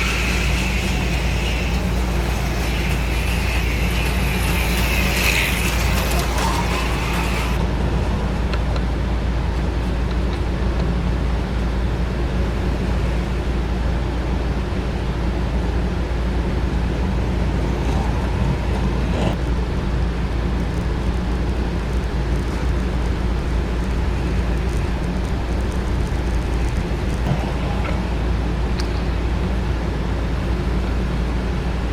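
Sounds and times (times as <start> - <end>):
slot car motors whirring: 0.0 - 7.7
high motor whine: 0.0 - 31.9.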